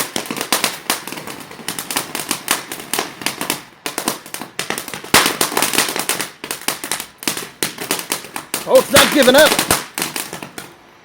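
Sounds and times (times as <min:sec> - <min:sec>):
rapid crackling pops: 0:00.0 - 0:10.8
firework fountain hissing: 0:00.0 - 0:11.0.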